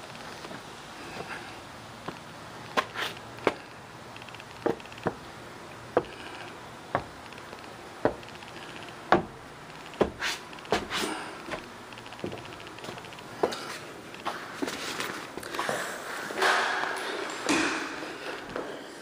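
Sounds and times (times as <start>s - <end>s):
footsteps on hard surface: 6.9s - 7.2s, 8.0s - 8.3s, 10.0s - 18.7s.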